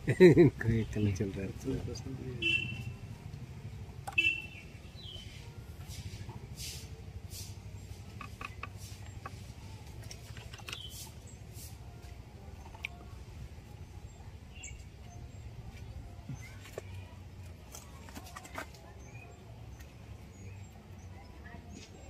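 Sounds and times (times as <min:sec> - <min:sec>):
small birds chirping: 0:00.0 - 0:22.0
light brushing sounds: 0:05.2 - 0:12.9.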